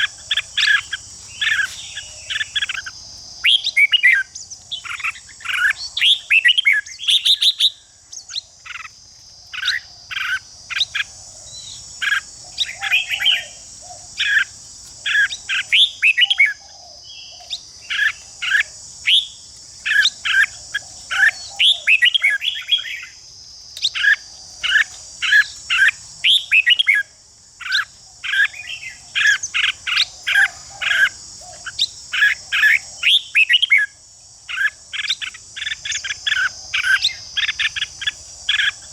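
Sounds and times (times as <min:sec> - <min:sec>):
bird whistling song: 0:00.0 - 0:08.9, 0:15.1 - 0:23.2, 0:26.2 - 0:32.3, 0:33.0 - 0:33.9
high insect drone: 0:00.0 - 0:38.9.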